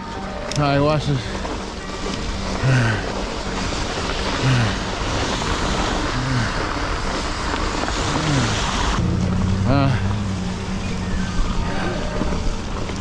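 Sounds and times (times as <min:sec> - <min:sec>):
bike tyres in snow: 0:00.0 - 0:13.0
short low falling tone: 0:08.4 - 0:12.8.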